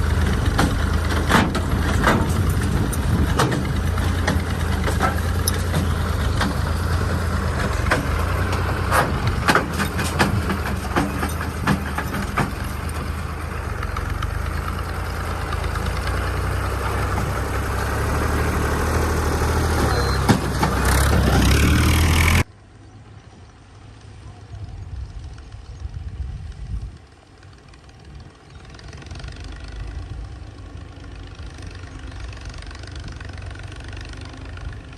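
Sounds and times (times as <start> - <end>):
knocks and rattles: 0.0 - 18.0, 19.5 - 21.9
tractor diesel engine running: 0.0 - 34.9.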